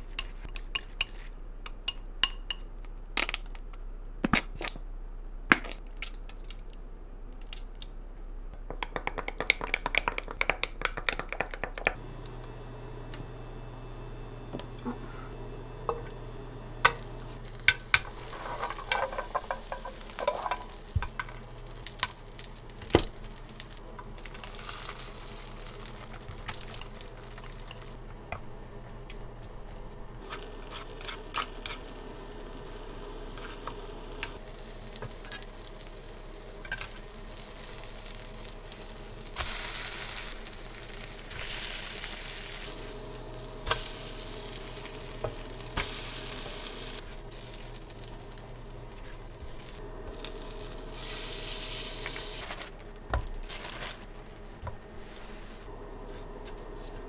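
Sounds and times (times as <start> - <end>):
food sizzling in a pan: 16.9 - 27.9, 30.2 - 52.7.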